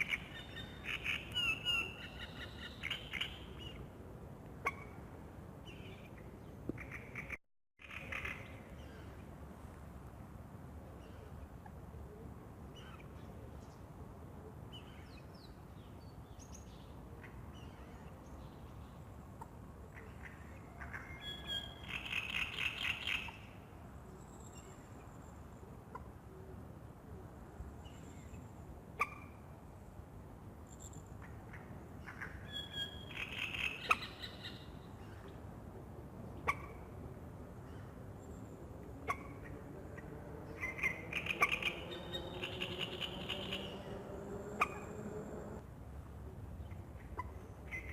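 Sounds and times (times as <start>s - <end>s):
birds chirping: 39.1s - 45.6s.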